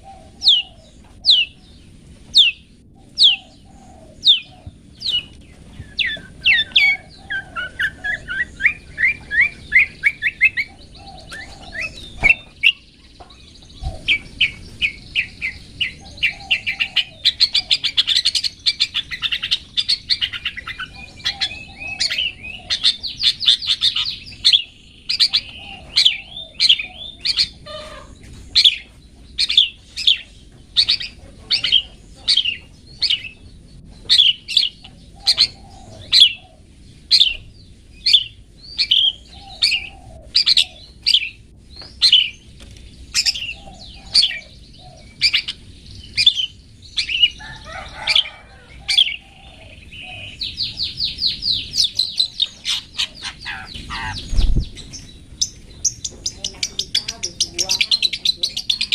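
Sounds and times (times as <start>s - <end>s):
bird calling with rapid trill: 0.0s - 33.4s, 34.0s - 42.4s, 43.1s - 58.9s
faint low bird chatter: 0.0s - 58.9s.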